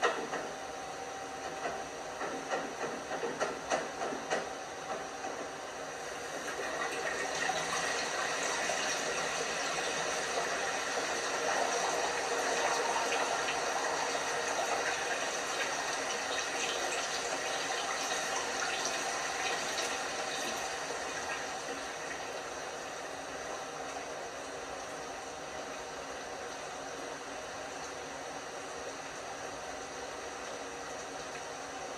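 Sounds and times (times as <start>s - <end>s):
water running into washing machine: 1.4s - 31.9s.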